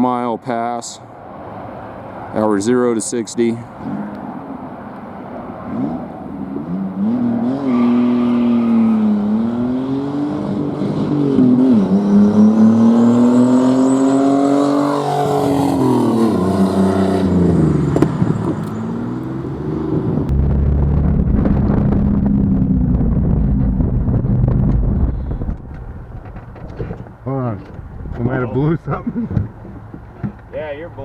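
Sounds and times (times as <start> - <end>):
car engine accelerating through gears: 5.6 - 25.9.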